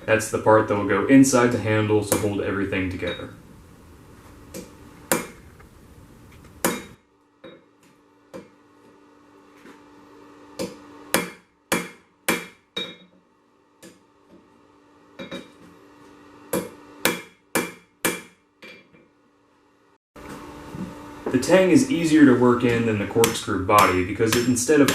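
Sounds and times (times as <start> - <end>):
hammer striking steel on anvil: 2.1 - 2.4, 4.5 - 5.4, 6.6 - 8.6, 10.6 - 13.1, 16.5 - 19.0, 22.6 - 24.9.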